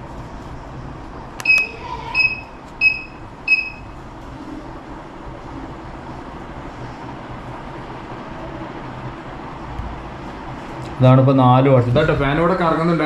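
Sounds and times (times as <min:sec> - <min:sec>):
steady low hum: 0:00.0 - 0:13.0
high-pitched buzzer beeps: 0:01.4 - 0:04.0.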